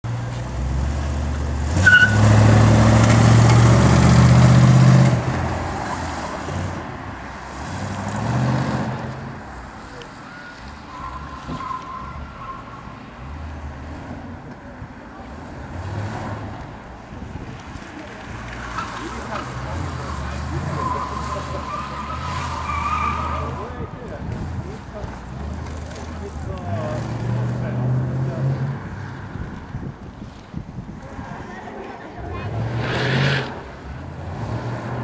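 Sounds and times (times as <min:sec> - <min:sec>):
car engine revving: 0:00.5 - 0:06.9.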